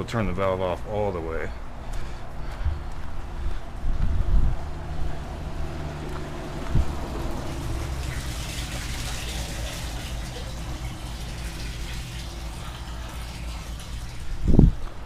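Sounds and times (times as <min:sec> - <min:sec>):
low electric hum: 0:01.6 - 0:15.0
water running and splashing: 0:05.4 - 0:15.0.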